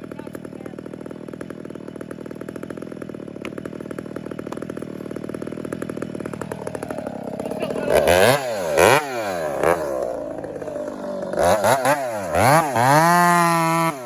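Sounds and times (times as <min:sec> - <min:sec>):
chainsaw idling: 0:00.0 - 0:14.0.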